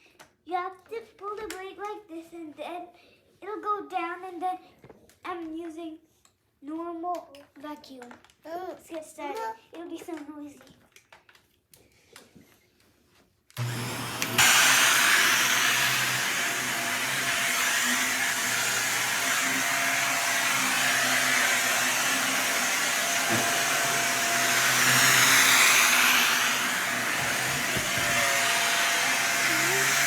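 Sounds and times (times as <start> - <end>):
vacuum cleaner running: 13.6 - 30.0.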